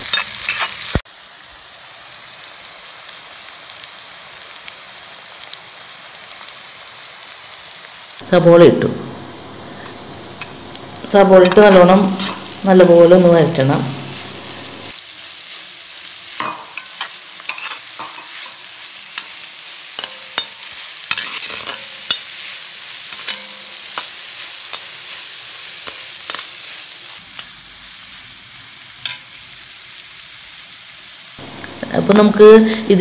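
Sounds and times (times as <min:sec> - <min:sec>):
steel spatula scraping a wok: 0:00.0 - 0:00.9, 0:09.6 - 0:14.9, 0:16.3 - 0:26.9
onions sizzling in a wok: 0:00.0 - 0:33.0.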